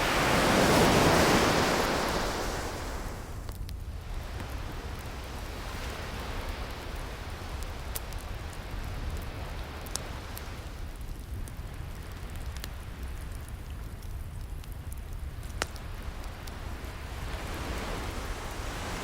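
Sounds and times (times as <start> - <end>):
ocean waves: 0.0 - 3.4, 15.8 - 19.0
fire popping: 0.0 - 19.0
wood fire crackling: 0.0 - 19.0.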